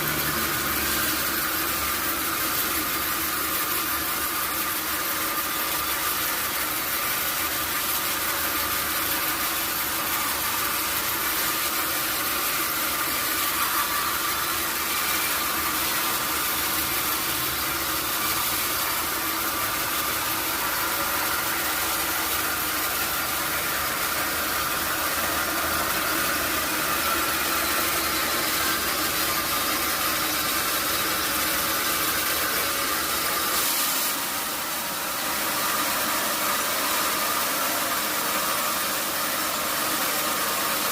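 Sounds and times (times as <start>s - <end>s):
sawmill saw running: 0.0s - 40.9s.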